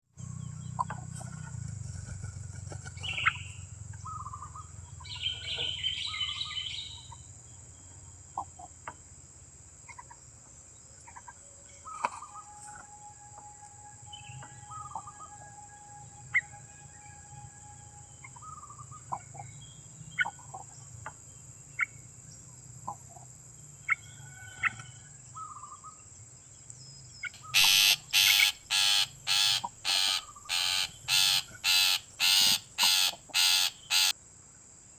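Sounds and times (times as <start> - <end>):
birds chirping and whistling: 3.0 - 7.1, 14.0 - 15.5, 27.3 - 34.1
steady high-pitched buzz: 27.4 - 34.1
loud harsh bird calls: 27.4 - 34.2.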